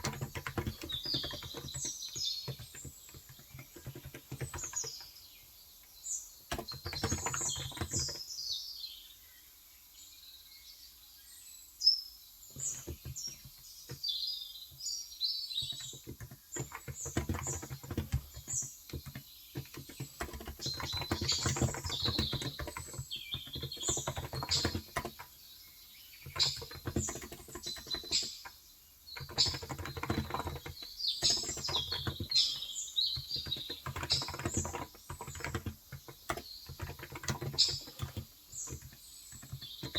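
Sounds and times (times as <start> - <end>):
keyboard typing: 0.0 - 5.1, 6.4 - 8.2, 12.5 - 14.0, 15.6 - 25.5, 26.2 - 39.9
small birds chirping: 0.0 - 39.9.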